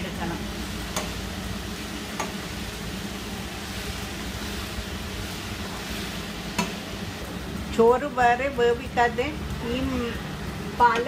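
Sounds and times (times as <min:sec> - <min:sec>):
spinach sizzling in a pan: 0:00.0 - 0:11.0
spoon clicking on pan: 0:00.9 - 0:01.2.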